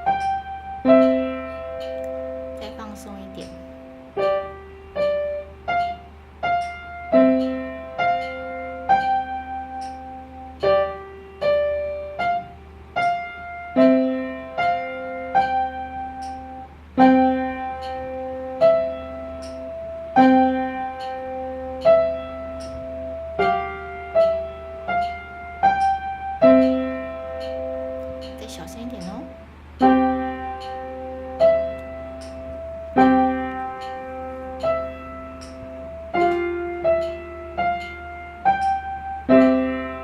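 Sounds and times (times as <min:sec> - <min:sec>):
slow piano melody: 0:00.0 - 0:40.0.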